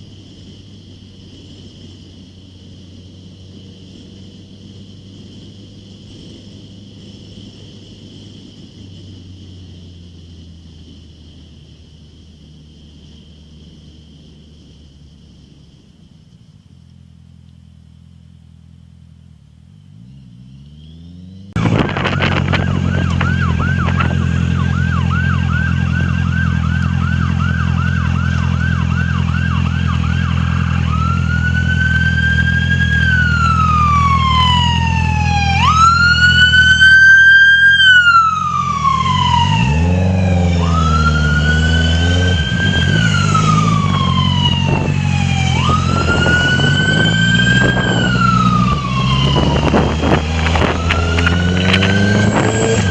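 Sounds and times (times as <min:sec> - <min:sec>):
low engine drone: 0:00.0 - 0:52.9
emergency vehicle siren: 0:21.6 - 0:52.9.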